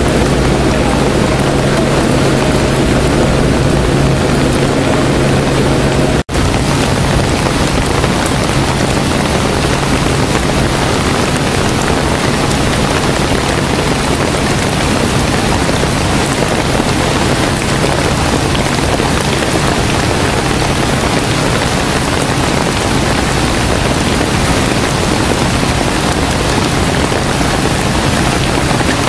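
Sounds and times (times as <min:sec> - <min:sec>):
heavy rain pouring: 0:00.0 - 0:29.0
low steady hum: 0:00.0 - 0:29.0
raindrop ticks: 0:06.4 - 0:29.0.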